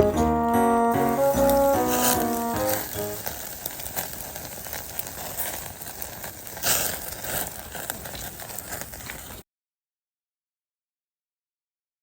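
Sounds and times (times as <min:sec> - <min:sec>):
campfire crackling: 0:00.0 - 0:09.4
fire hissing flare: 0:00.0 - 0:09.4.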